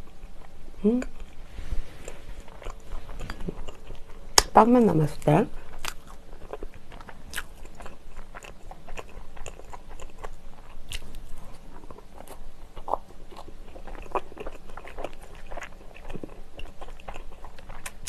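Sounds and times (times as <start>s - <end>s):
biting and chewing bread: 5.6s - 18.0s.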